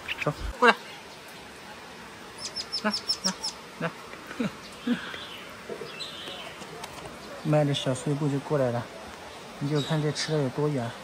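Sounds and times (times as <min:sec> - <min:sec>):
rain hissing: 0:00.0 - 0:11.0
small bird chirping: 0:02.4 - 0:03.6, 0:04.6 - 0:07.6.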